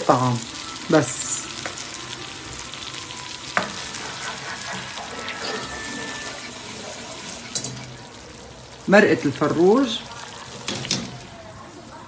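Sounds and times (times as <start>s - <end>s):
food frying in a pot: 0.0s - 12.0s
wooden spoon stirring in a pot: 3.5s - 11.5s.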